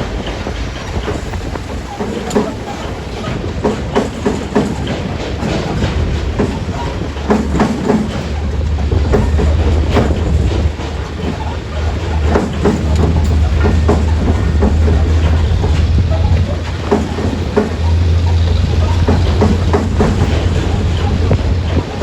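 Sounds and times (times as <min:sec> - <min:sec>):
metallic clanks and rattles: 0:00.2 - 0:22.0
heavy diesel engine running: 0:07.1 - 0:22.0.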